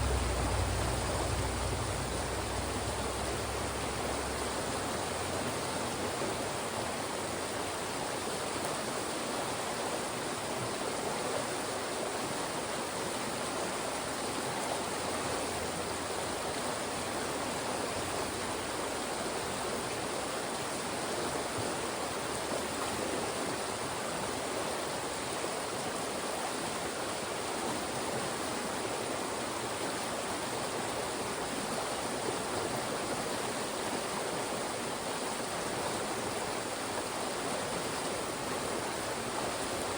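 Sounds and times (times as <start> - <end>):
stream rushing between rocks: 0.0 - 39.9.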